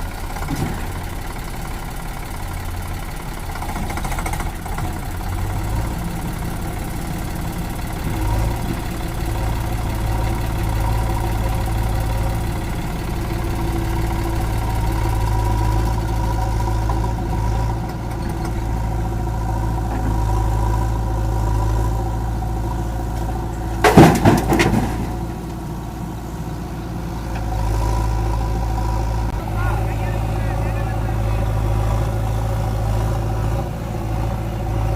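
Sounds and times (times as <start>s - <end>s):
heavy diesel engine running: 0.0s - 34.9s
loud clatter of knocks: 23.8s - 25.3s.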